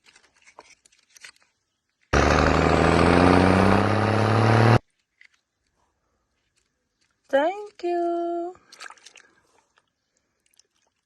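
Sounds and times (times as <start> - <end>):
vehicle engine revving: 2.2 - 4.8.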